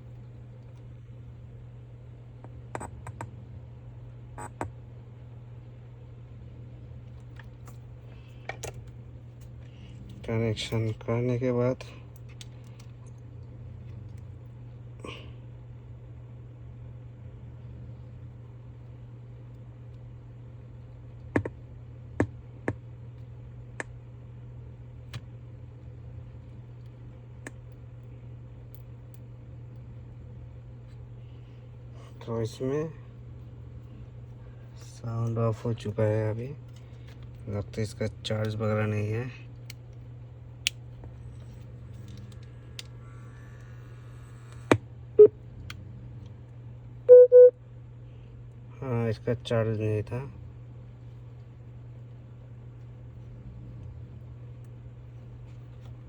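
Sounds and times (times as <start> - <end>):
steady low hum: 0.0 - 56.0
sharp clicks and taps: 21.3 - 21.6
short electronic beep: 47.1 - 47.5.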